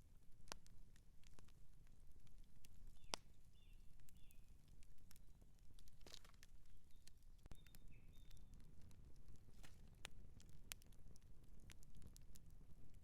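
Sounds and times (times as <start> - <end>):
campfire crackling: 0.0 - 13.0
faint bird chirps: 6.9 - 8.6.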